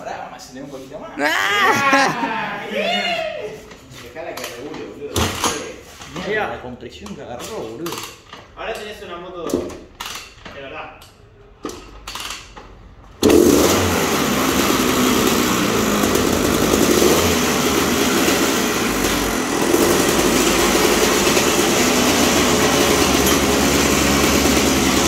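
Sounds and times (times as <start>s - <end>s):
motocross engine running: 13.2s - 25.0s.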